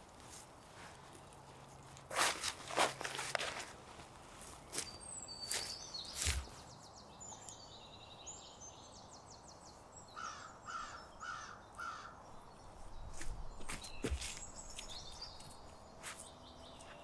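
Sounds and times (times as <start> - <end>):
songbirds chirping and trilling: 3.3 - 17.0
crow cawing: 10.2 - 12.2.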